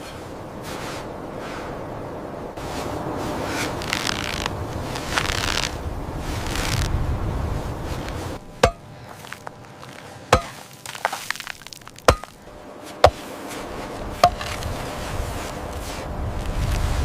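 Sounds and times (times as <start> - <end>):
rushing wind-like noise: 0.0 - 10.7, 12.0 - 17.0
sharp chopping blows: 8.6 - 8.9, 10.3 - 12.4, 14.2 - 14.6.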